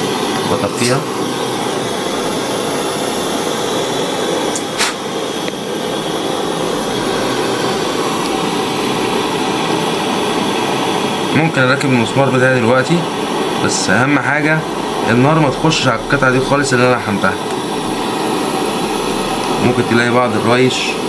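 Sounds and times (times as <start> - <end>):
blower machine running: 0.0 - 21.0
sharp click: 4.6 - 5.0.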